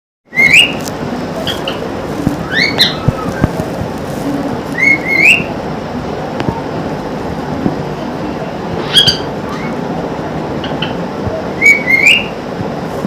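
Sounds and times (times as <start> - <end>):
parrot whistling: 0.3 - 0.8, 2.4 - 3.6, 4.8 - 5.5, 11.6 - 12.3.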